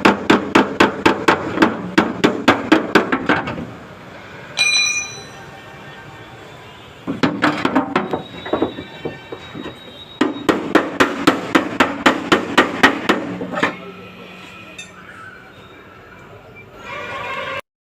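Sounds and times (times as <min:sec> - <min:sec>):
hammer striking sheet metal: 0:04.6 - 0:05.5.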